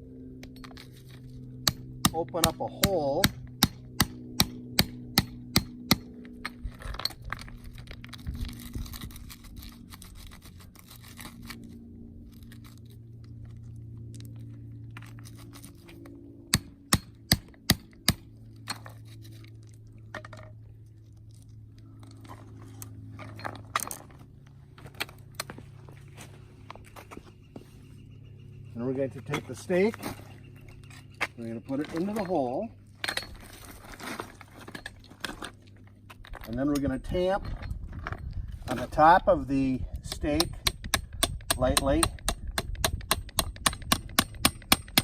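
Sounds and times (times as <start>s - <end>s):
pipe scraping in soil: 38.5s - 39.2s.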